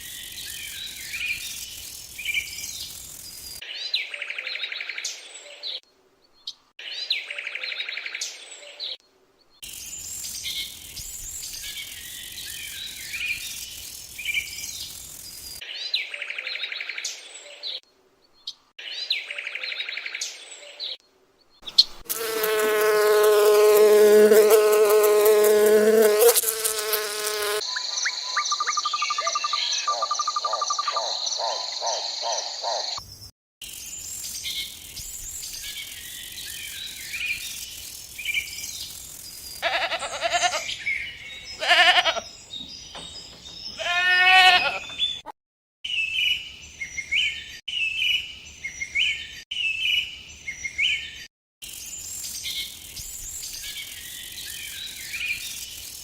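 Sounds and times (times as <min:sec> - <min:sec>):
high insect-like buzz: 0:22.0 - 0:27.7.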